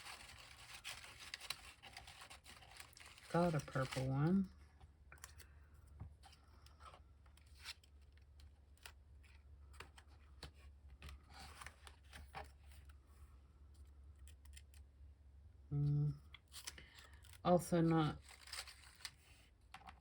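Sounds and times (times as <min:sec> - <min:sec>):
paper rustling and tapping: 0:18.4 - 0:20.0.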